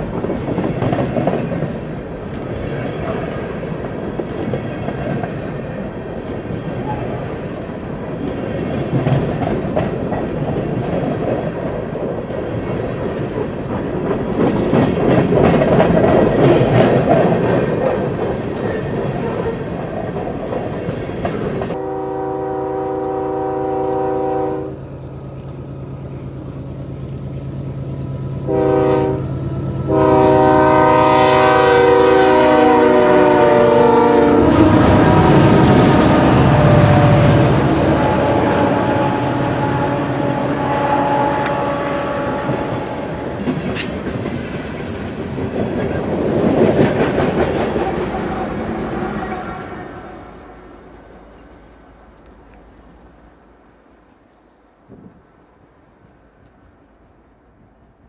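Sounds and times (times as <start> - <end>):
freight train rumbling: 0.0 - 58.0
train air horn blasts: 21.7 - 24.8, 28.4 - 43.6.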